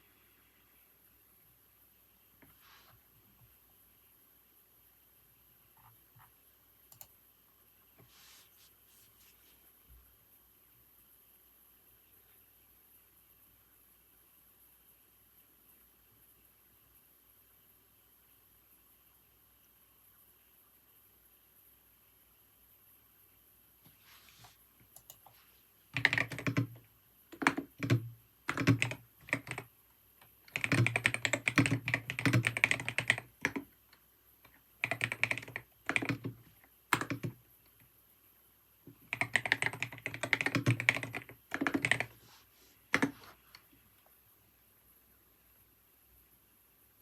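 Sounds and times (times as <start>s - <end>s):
keyboard typing clicks: 6.9s - 7.1s, 26.0s - 29.7s, 30.5s - 33.7s, 34.4s - 37.4s, 39.1s - 42.1s.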